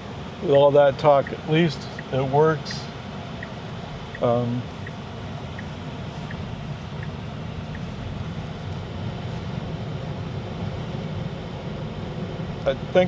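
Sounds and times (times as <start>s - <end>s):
road and tyre noise in car: 0.0s - 13.0s
faint ticks: 3.4s - 8.9s.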